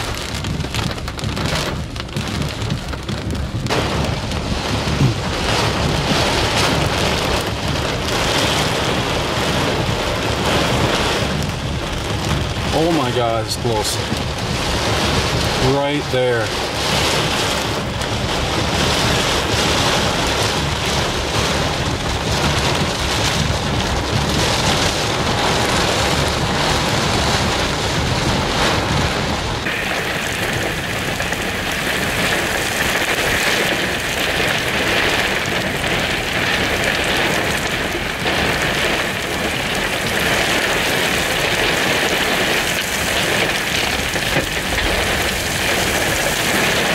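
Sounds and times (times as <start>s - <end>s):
low rumble: 0.0s - 46.9s
heavy rain hissing: 1.4s - 46.9s.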